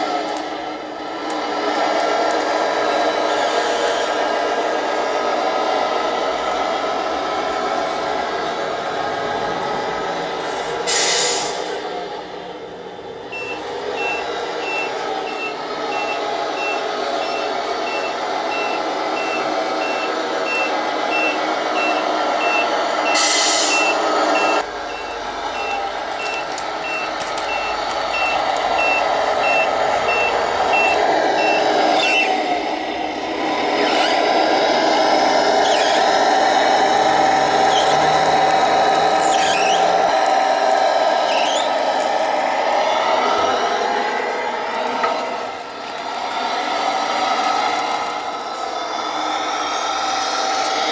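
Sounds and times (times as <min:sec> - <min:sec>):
electronic truck engine sound: 0:05.2 - 0:50.9
reversing beeper: 0:13.3 - 0:32.4.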